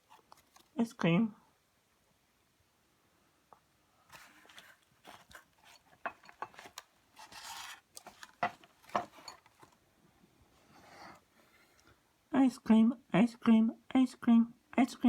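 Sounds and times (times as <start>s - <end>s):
scraping rub: 4.1s - 9.4s
handling taps and clicks: 4.5s - 6.9s, 7.9s - 9.8s.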